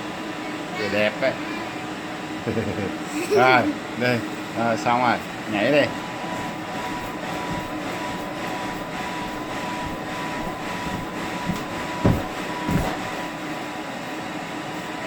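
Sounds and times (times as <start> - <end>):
rumbling background hum: 5.6 - 13.4
soft thumps of jumping: 6.4 - 13.3.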